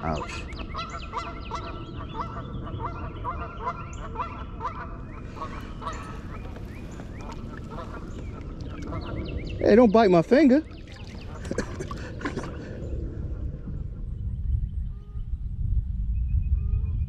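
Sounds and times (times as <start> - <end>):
small birds chirping: 5.1 - 13.0.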